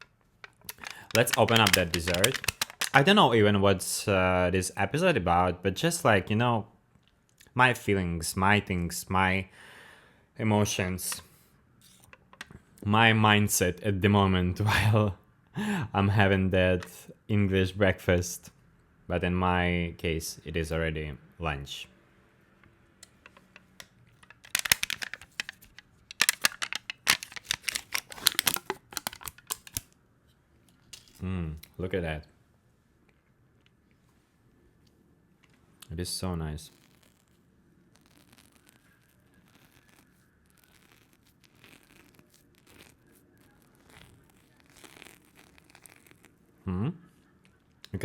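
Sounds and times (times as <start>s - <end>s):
plastic cup clicks: 0.0s - 3.0s, 23.0s - 29.8s
plastic packaging crinkling: 0.0s - 3.2s, 24.1s - 30.0s, 36.7s - 46.4s
soft rustles and scrapes: 33.8s - 46.6s.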